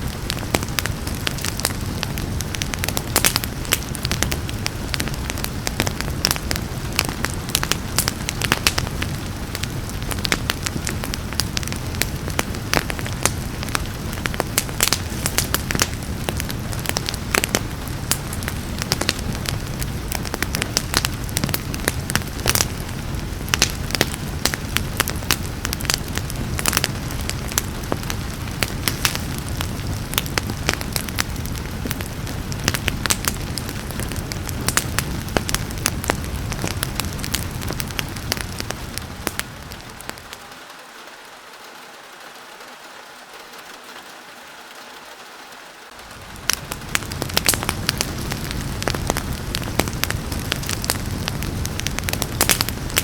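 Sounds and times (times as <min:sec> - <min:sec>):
low rumble of flames: 0:00.0 - 0:40.7, 0:45.9 - 0:53.0
wood fire crackling and popping: 0:00.0 - 0:40.7, 0:45.9 - 0:53.0
soft hiss of rain: 0:00.0 - 0:53.0.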